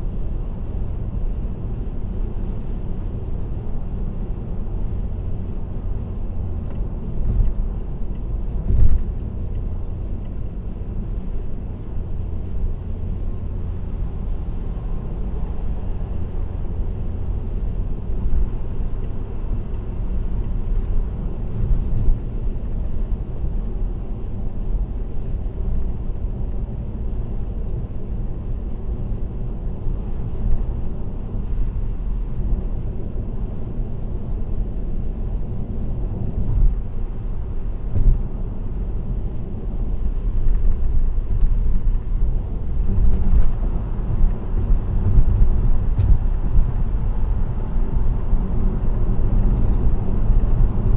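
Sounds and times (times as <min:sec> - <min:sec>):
car road noise rumble: 0:00.0 - 0:50.9
faint light ticks: 0:02.4 - 0:05.6, 0:06.5 - 0:17.4, 0:18.0 - 0:23.5, 0:25.0 - 0:37.0, 0:37.8 - 0:50.9.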